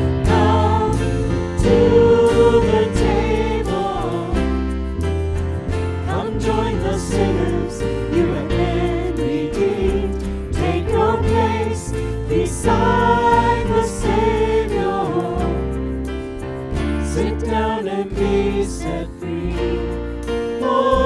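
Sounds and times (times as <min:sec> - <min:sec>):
drum beat: 0:00.0 - 0:11.8
bass line: 0:00.0 - 0:21.0
voices singing worship song: 0:00.0 - 0:21.0.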